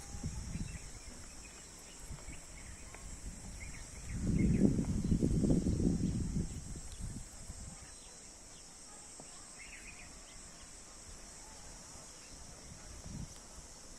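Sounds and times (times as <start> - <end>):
bird chirp: 0.0 - 6.2
insect chorus: 0.0 - 13.9.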